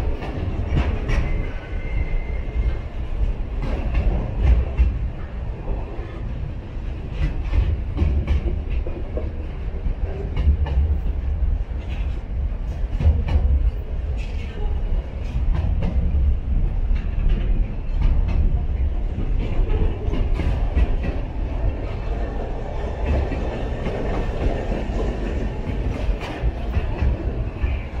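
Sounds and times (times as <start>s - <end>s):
freight train rumbling: 0.0s - 28.0s
wheels clacking over rail joints: 15.2s - 28.0s.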